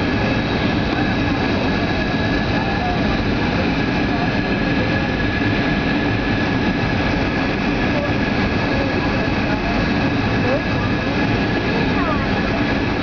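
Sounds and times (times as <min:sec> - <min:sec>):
drone of engines and airflow: 0:00.0 - 0:13.0
steady high whine: 0:00.0 - 0:13.0.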